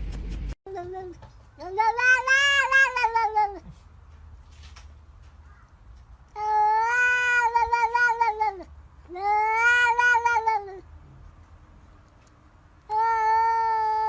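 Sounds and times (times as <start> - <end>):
cat yowling: 1.6 - 3.7, 6.4 - 10.8, 12.9 - 14.0.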